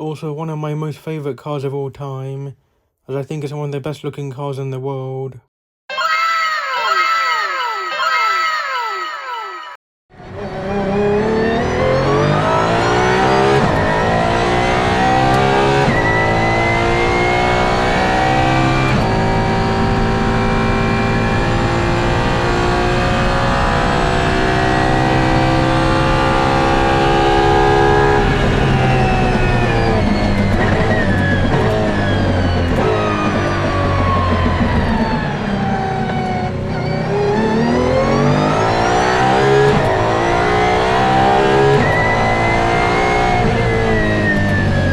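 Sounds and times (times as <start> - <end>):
race car accelerating: 10.2 - 44.9.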